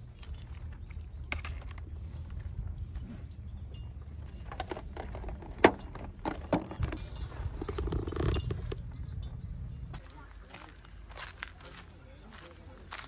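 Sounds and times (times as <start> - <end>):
low steady rumble: 0.0 - 10.4.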